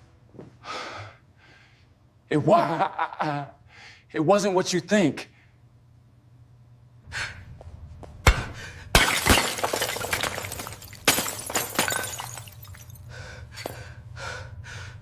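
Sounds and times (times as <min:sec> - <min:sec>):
falling glass shards: 0:09.0 - 0:13.0
glass shattering: 0:09.0 - 0:13.0.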